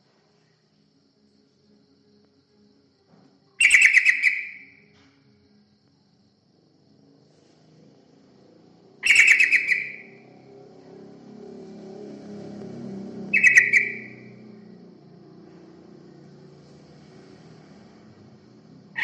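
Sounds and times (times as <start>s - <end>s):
bulbul chattering calls: 3.6s - 4.7s, 9.0s - 10.2s, 13.3s - 14.3s.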